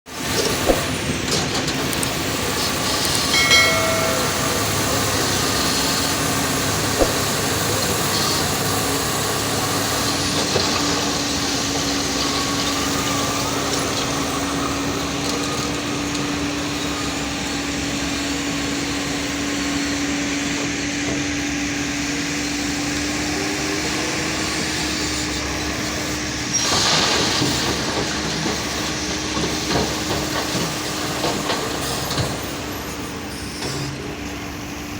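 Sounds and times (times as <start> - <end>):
sharp knocks: 3.4 - 5.2, 7.0 - 7.4.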